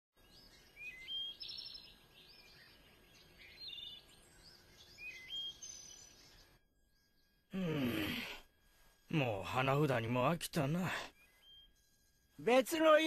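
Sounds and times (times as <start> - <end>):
faint birdsong: 0.2 - 13.0
steady background hiss: 0.2 - 13.0.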